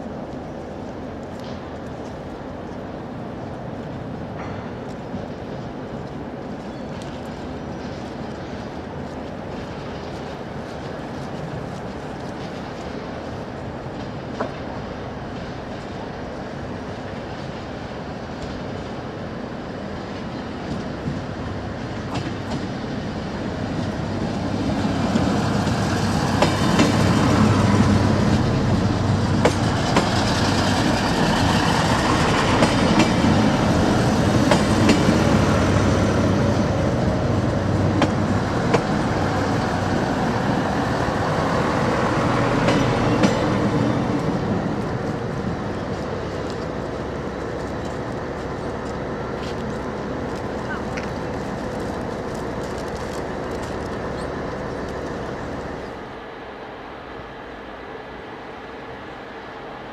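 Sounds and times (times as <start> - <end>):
train rumbling slowly: 0.0 - 59.9
wheels clicking over rail joints: 20.1 - 56.1.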